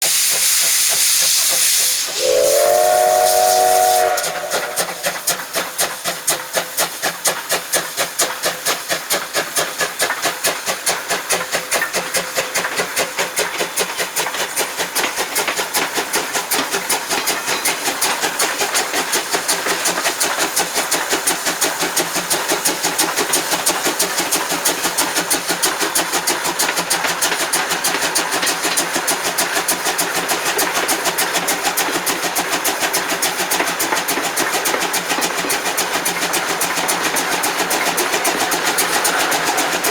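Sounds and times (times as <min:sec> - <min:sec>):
steam locomotive exhaust chuffing: 0:00.0 - 0:39.9.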